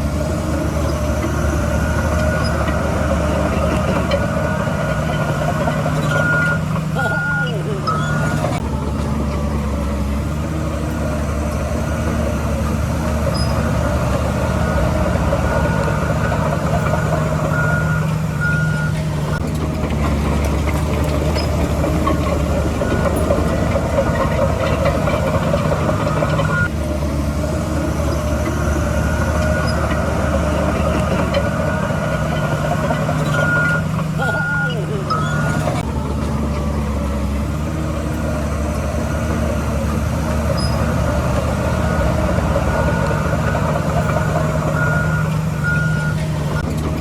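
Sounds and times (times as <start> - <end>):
bulldozer diesel engine running: 0.0 - 47.0
tracks clattering and squealing: 0.0 - 47.0
reversing alarm beeps: 1.3 - 8.6, 13.2 - 19.5, 21.2 - 26.7, 28.8 - 35.8, 40.6 - 46.7.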